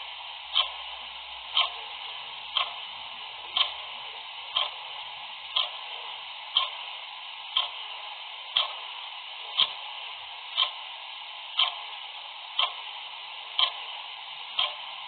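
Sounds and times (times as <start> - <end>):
background hiss: 0.0 - 15.0
clock ticking: 0.5 - 0.8, 1.5 - 1.9, 2.5 - 2.8, 3.5 - 3.9, 4.5 - 4.8, 5.5 - 5.9, 6.5 - 6.8, 7.5 - 7.8, 8.5 - 8.9, 9.6 - 9.8, 10.6 - 10.8, 11.6 - 11.9, 12.6 - 12.8, 13.6 - 13.9, 14.6 - 14.9.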